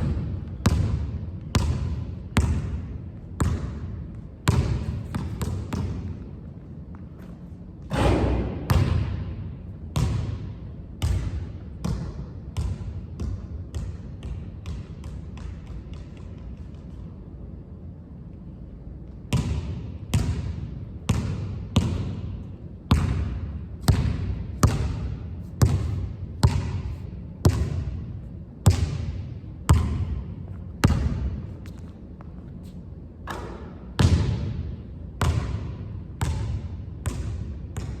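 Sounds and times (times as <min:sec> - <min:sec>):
basketball bouncing on hard court: 0:00.0 - 0:06.4, 0:07.2 - 0:17.0, 0:19.3 - 0:31.9, 0:33.2 - 0:38.0.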